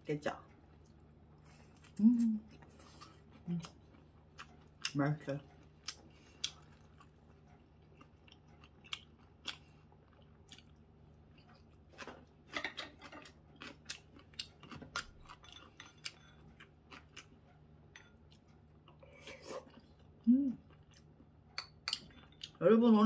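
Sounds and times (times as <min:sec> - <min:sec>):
chewing fried food: 0:00.5 - 0:22.6
chopsticks and spoon clicking dishes: 0:21.5 - 0:22.6.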